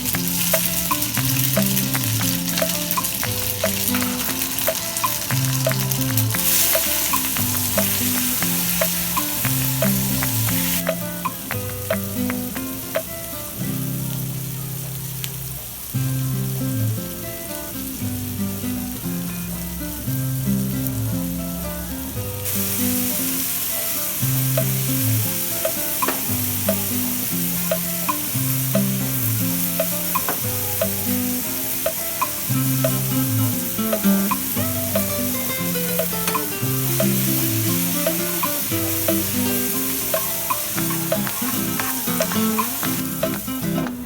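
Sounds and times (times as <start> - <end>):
background music: 0.0 - 15.9, 20.9 - 44.0
food sizzling in a pan: 0.0 - 44.0
spatula clicking against pan: 0.1 - 13.1, 24.6 - 25.0, 25.6 - 31.2, 31.9 - 43.5.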